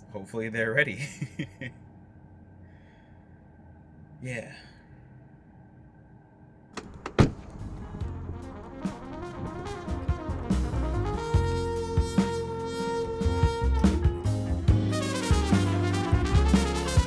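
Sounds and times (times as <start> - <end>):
jazzy brass music with drums: 6.8 - 17.0.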